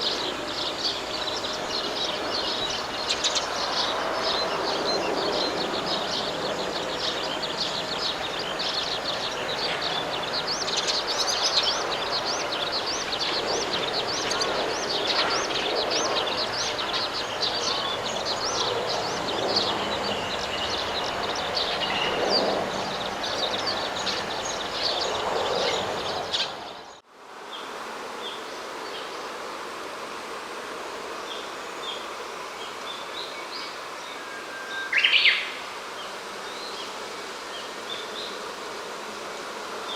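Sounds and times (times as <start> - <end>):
small birds chirping: 0.0 - 27.0
steady rushing noise: 0.0 - 39.9.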